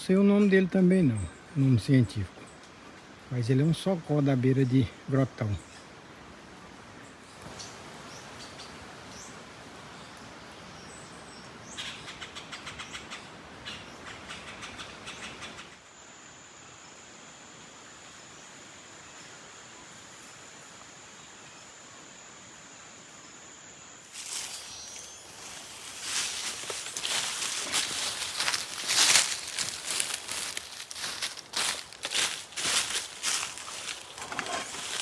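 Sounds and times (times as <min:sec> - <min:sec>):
steady hiss: 0:15.8 - 0:35.0
high-pitched insect whine: 0:15.9 - 0:35.0
rustling: 0:24.1 - 0:35.0.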